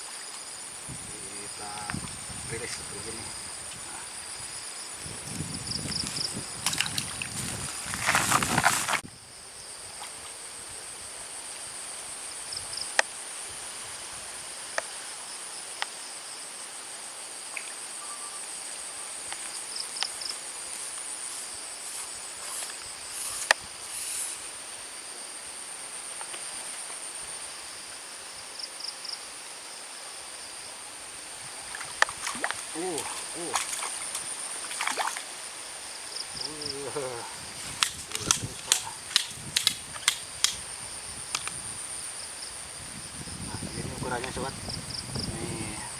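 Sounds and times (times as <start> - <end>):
insects droning: 0.0 - 45.9
sharp clicks: 37.8 - 40.6.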